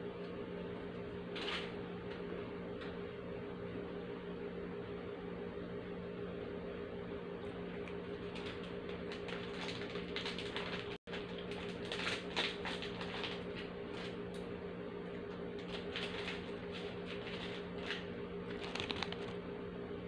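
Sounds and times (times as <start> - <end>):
steady low hum: 0.0 - 20.0
chewing crisp biscuits: 15.6 - 19.4.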